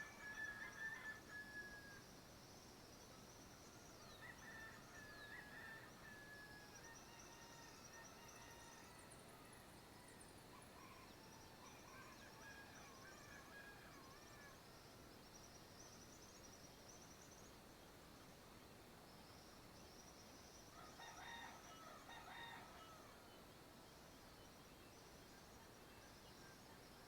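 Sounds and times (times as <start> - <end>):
distant rooster crowing: 20.8 - 23.2.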